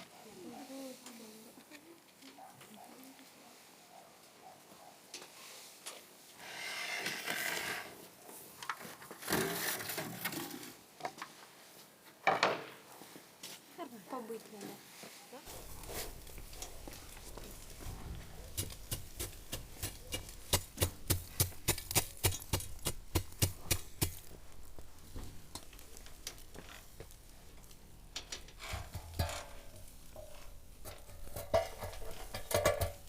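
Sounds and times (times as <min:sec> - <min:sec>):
knocks and clatter: 0:28.2 - 0:33.0.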